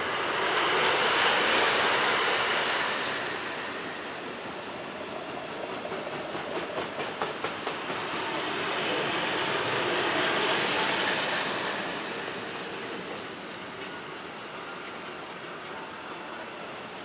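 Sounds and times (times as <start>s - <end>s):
rush of wheel and rail noise: 0.0s - 17.0s
train wheels clicking over rail joints: 0.3s - 10.6s.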